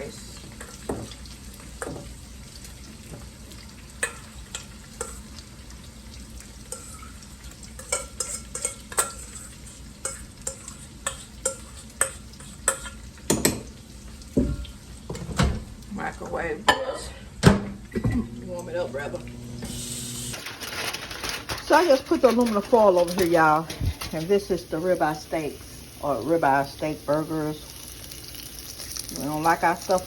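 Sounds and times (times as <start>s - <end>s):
burgers sizzling in a pan: 0.0s - 17.2s, 17.9s - 30.0s
utensil clinking on cookware: 7.8s - 13.7s, 21.6s - 24.7s.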